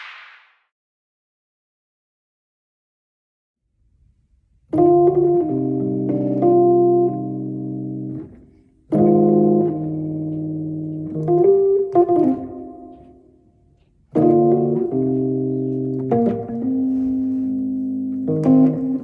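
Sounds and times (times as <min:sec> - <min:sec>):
electric piano chords: 0:04.7 - 0:19.0.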